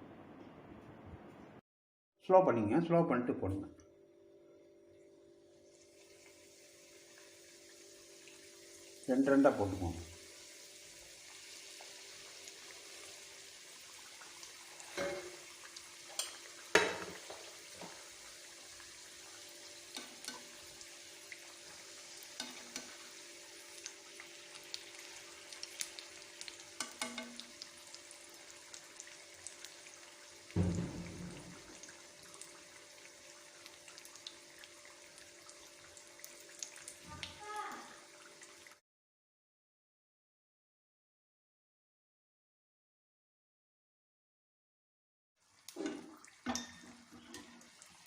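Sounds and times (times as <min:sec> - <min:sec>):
food deep-frying in oil: 0:05.5 - 0:38.8, 0:45.4 - 0:48.0
low thump: 0:30.6 - 0:31.6.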